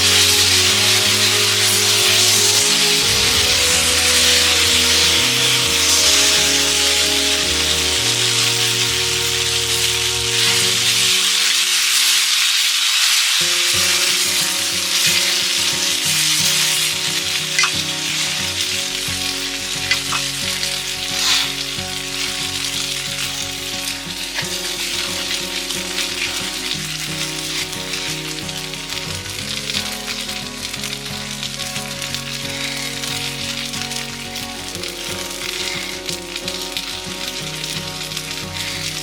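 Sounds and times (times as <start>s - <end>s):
background music: 0.0s - 12.3s, 13.4s - 39.0s
food sizzling in a pan: 0.0s - 39.0s
fat spattering ticks: 10.6s - 39.0s.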